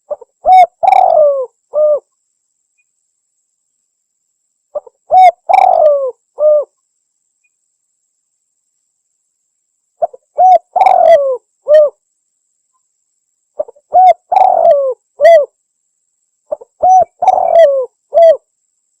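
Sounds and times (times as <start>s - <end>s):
dove cooing: 0.0s - 2.1s, 4.8s - 6.7s, 10.0s - 12.0s, 13.6s - 15.5s, 16.5s - 18.5s.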